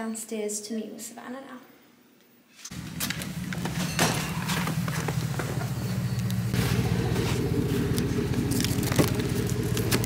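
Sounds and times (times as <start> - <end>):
vehicle engine humming: 2.7 - 10.0.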